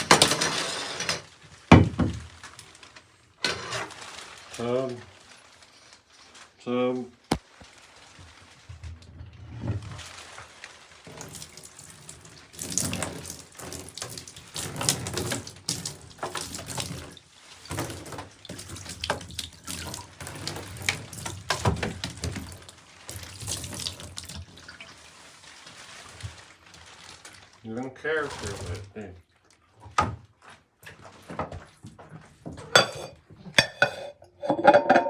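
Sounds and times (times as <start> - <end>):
water splashing in a bathtub: 0.0 - 35.0.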